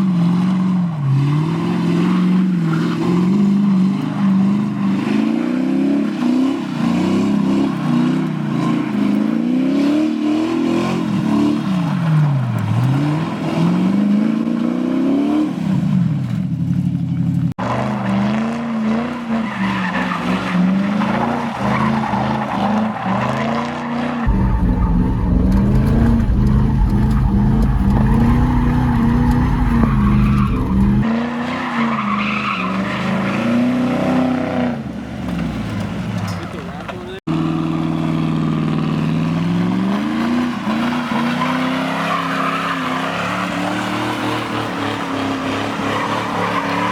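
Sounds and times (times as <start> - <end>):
tires squealing on pavement: 0.0 - 15.6, 17.6 - 37.8, 38.6 - 46.9
car engine revving: 17.6 - 31.3
heavy low rumble: 24.3 - 31.0.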